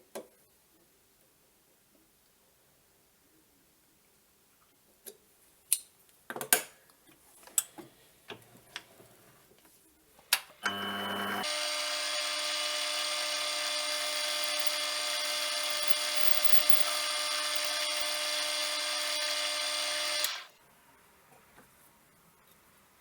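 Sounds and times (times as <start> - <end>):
power tool motor whining: 10.6 - 20.6.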